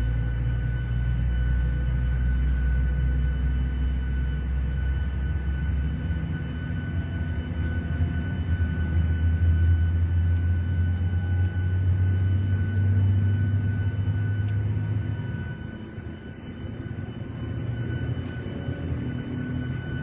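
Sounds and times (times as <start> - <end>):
faint high whine: 0.0 - 20.0
jet engine drone: 0.0 - 20.0.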